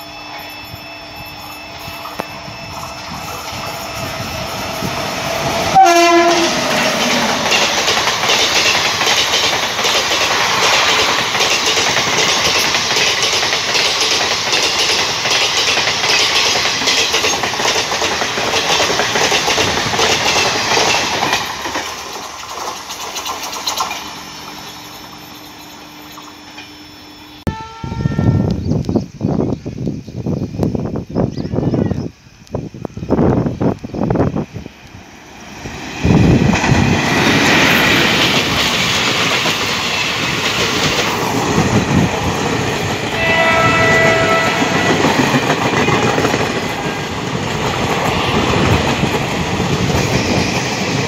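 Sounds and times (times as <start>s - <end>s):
train coaches rushing past: 0.0s - 27.5s, 33.1s - 51.0s
locomotive horn blast: 3.7s - 7.4s, 27.4s - 28.6s, 43.1s - 45.3s
wheels clattering over rail joints: 5.5s - 26.8s.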